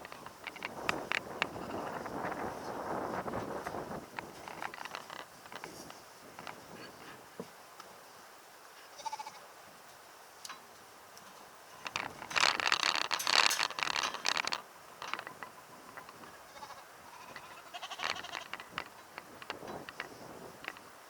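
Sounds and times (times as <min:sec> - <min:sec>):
faint clicks: 0:00.0 - 0:06.6, 0:10.4 - 0:16.4, 0:17.1 - 0:20.9.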